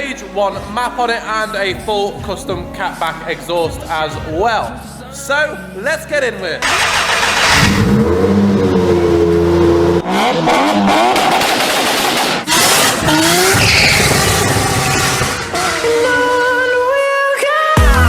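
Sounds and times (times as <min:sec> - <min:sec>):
car engine revving hard: 0:06.6 - 0:16.9.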